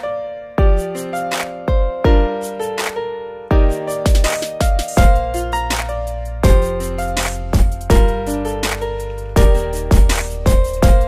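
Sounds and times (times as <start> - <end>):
keyboard chords over bass beat: 0.0 - 11.0
heavy bass hit: 5.0 - 5.4, 6.4 - 8.3, 9.4 - 11.0.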